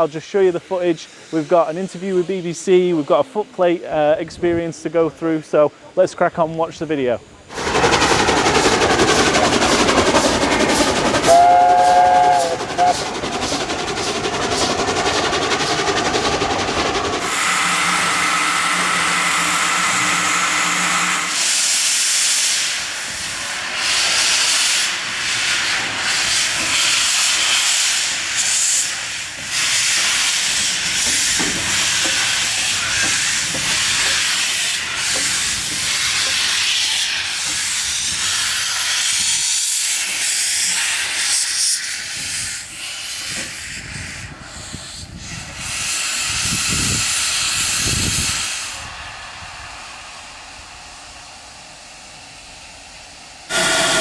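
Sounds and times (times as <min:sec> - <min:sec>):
steam hissing: 0:00.0 - 0:04.2, 0:07.5 - 0:54.0
steam locomotive whistle: 0:11.2 - 0:13.1, 0:17.2 - 0:22.7, 0:53.5 - 0:54.0.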